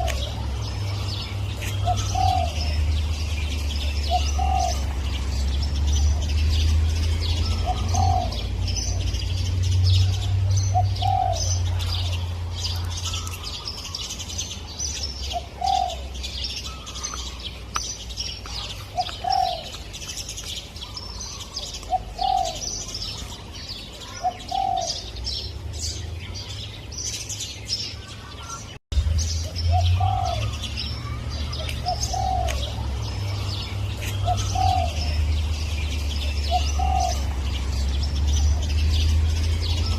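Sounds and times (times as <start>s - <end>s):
dove cooing: 0.0s - 5.1s, 7.3s - 9.2s, 10.0s - 12.2s, 15.3s - 17.4s, 18.6s - 19.8s, 20.8s - 23.2s, 24.0s - 25.1s, 29.7s - 32.9s, 33.6s - 35.6s, 36.2s - 37.9s
high chirping of songbirds: 0.0s - 39.9s.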